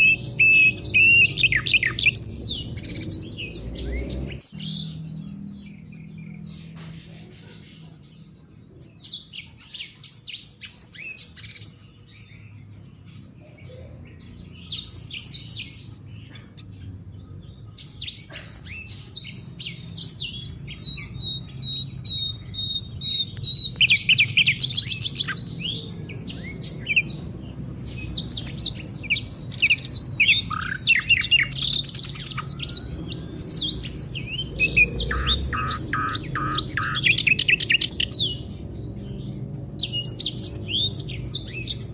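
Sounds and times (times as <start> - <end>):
songbirds chirping and trilling: 0.0 - 41.9
bird high whistle: 34.7 - 37.3.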